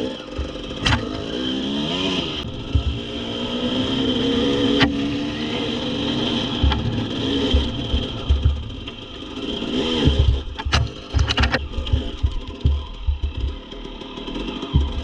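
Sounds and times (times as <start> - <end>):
dirt bike engine revving: 0.0 - 15.0
sharp clicks: 6.6 - 13.6.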